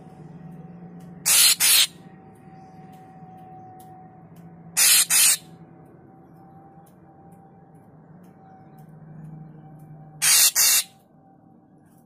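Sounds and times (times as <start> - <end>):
bird giving harsh rasping calls: 1.3 - 2.0, 4.8 - 5.4, 10.2 - 11.0.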